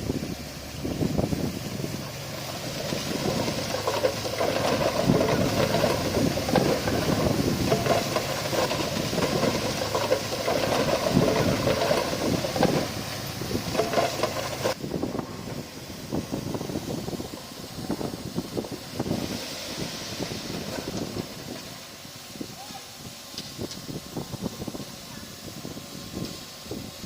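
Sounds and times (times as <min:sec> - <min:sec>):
diesel engine under load: 0:00.0 - 0:22.5
metal clanks and knocks: 0:03.1 - 0:14.8.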